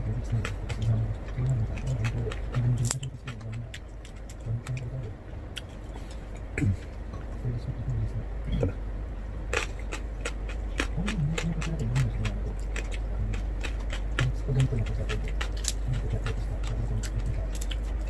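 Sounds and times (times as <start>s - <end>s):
chewing and mouth-smacking: 0.2s - 5.0s, 9.5s - 18.0s.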